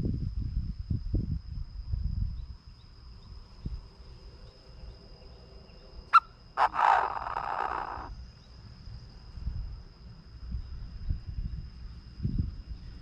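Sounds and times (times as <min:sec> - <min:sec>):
bird harsh call: 0:06.1 - 0:08.1.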